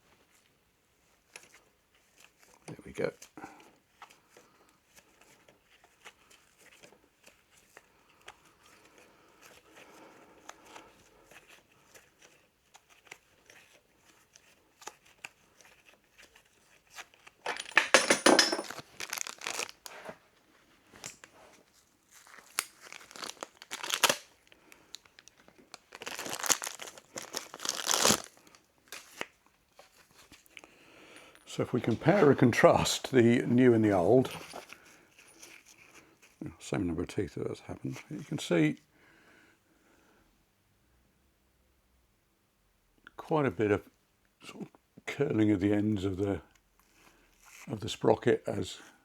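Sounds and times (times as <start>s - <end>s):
wrapping torn and crinkled: 18.7s - 20.1s, 21.1s - 29.3s.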